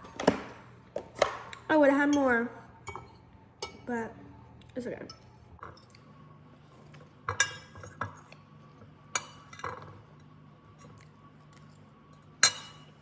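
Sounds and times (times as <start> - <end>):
utensil clinking against dishes: 7.2 - 8.4, 9.1 - 13.0.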